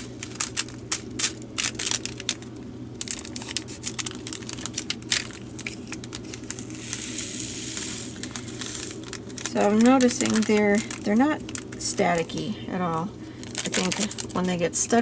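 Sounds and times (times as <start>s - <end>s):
plastic bag crinkling: 0.0s - 15.0s
beads sliding hiss: 5.6s - 10.4s.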